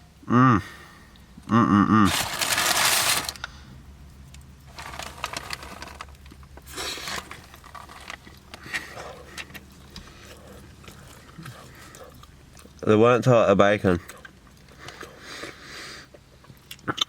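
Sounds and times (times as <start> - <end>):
faint low hum: 0.0 - 17.0
paper wrapper crinkling: 2.1 - 3.5, 4.6 - 11.7.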